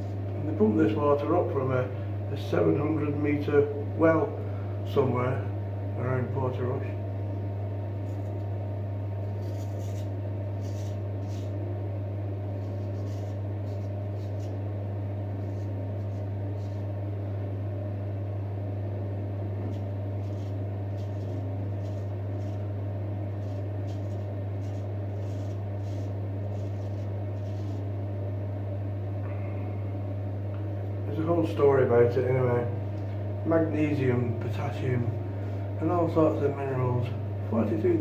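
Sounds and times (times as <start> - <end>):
steady low hum: 0.0 - 38.0
razor scraping stubble: 8.0 - 8.6, 9.2 - 11.6, 12.5 - 14.6, 19.7 - 22.7, 23.3 - 27.9.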